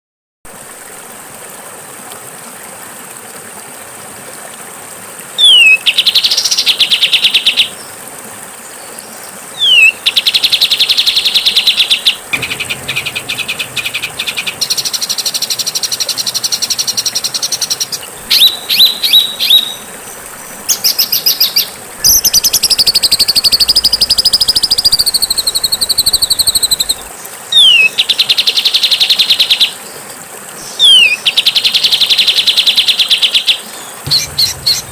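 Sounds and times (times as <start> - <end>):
steady background hiss: 4.7 - 34.9
bird harsh buzzy song: 9.6 - 28.2, 30.6 - 31.2, 33.9 - 34.9
stuttering chatter of notes: 12.2 - 16.6, 34.1 - 34.9.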